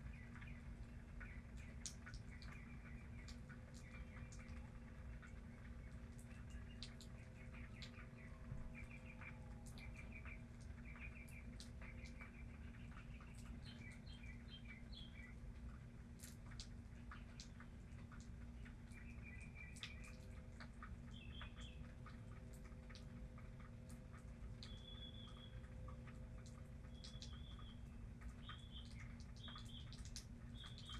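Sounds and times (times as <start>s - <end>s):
faint low hum: 0.0s - 30.9s
water dripping: 0.0s - 30.9s.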